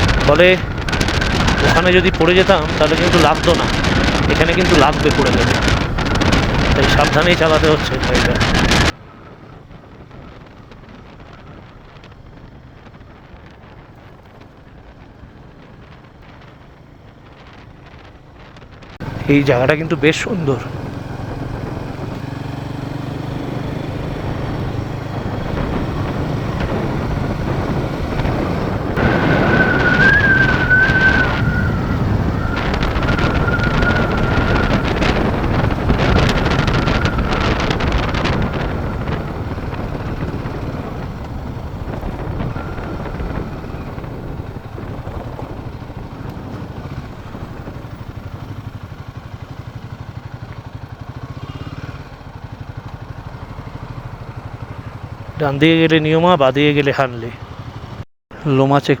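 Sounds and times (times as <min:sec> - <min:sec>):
wind buffeting microphone: 0:00.0 - 0:55.5
motorcycle engine running: 0:00.0 - 0:56.2, 0:57.3 - 0:58.0
thin wavering whine: 0:29.0 - 0:37.6.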